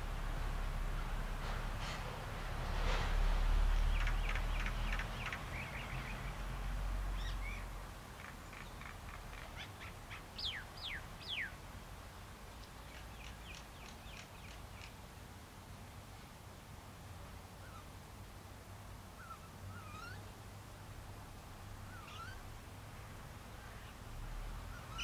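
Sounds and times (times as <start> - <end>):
birds chirping: 3.9 - 6.4, 7.2 - 11.6, 21.9 - 22.4.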